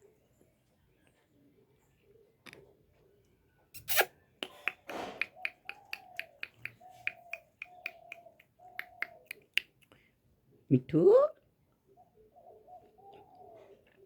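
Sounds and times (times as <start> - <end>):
finger snapping: 4.4 - 9.8.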